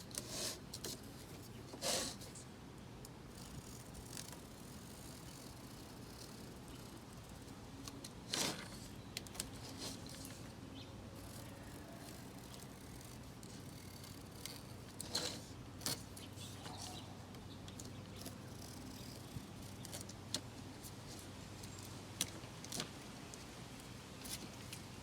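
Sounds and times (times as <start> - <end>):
faint scrapes trimming screen mesh: 0.1 - 2.4, 3.4 - 10.5, 11.2 - 17.0.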